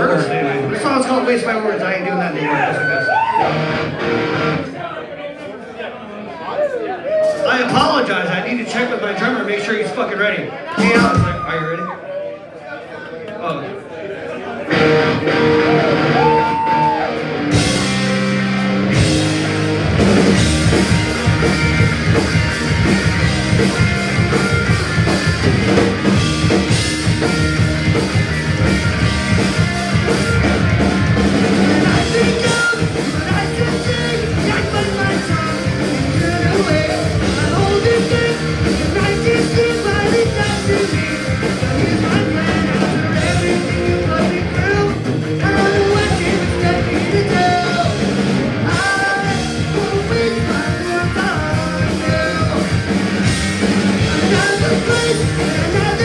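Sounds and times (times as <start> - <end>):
punk rock band playing live: 2.8 - 4.7, 10.8 - 11.5, 14.7 - 56.0.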